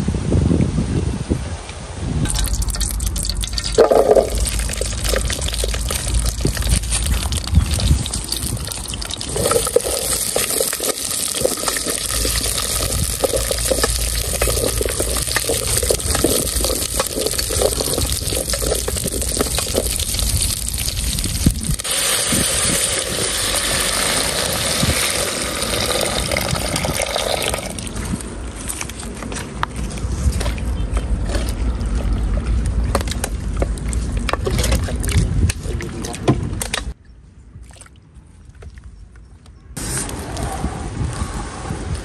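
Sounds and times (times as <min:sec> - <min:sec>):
food sizzling in hot oil: 0:02.3 - 0:27.4
wooden spatula stirring: 0:02.4 - 0:21.2.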